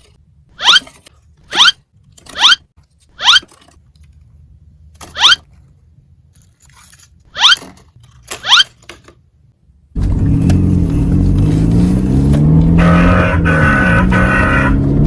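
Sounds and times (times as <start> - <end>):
short loud rising squeaks: 0.6 - 0.9, 1.5 - 3.5, 5.1 - 5.4, 7.3 - 7.6, 8.4 - 8.7.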